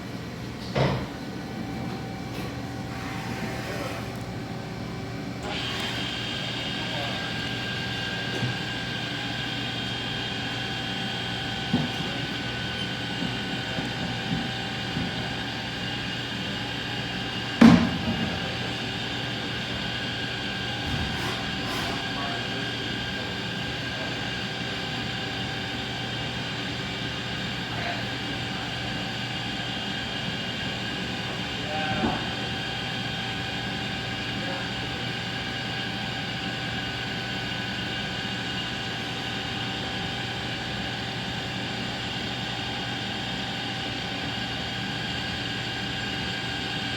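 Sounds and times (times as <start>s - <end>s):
lathe machine hum: 1.2s - 46.9s
machine whining tones: 5.4s - 15.5s.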